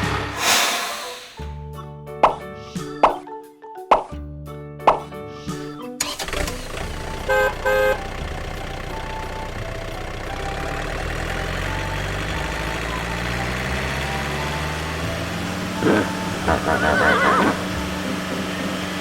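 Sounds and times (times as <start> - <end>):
vehicle engine running: 6.6 - 16.8, 17.5 - 19.0
vehicle horn tooting: 7.2 - 8.1.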